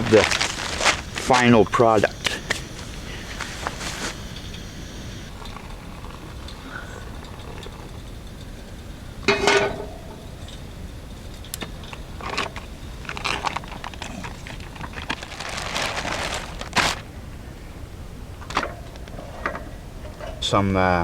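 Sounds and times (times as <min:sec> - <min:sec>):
food wrapper crinkling: 0:00.0 - 0:04.7, 0:12.2 - 0:17.1
sharp clicks: 0:00.0 - 0:08.7.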